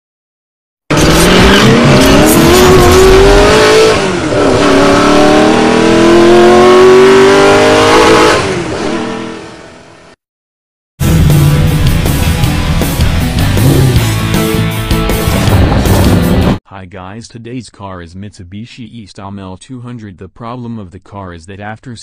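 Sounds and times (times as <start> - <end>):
sports car engine revving: 0.9 - 9.8, 13.5 - 14.2.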